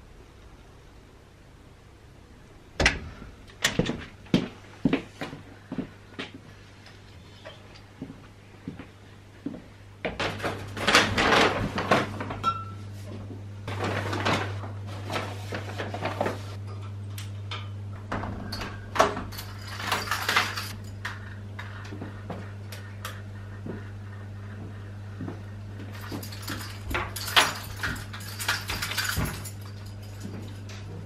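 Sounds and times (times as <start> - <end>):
low hum: 16.6 - 31.0
knocks and clatters: 24.6 - 31.0.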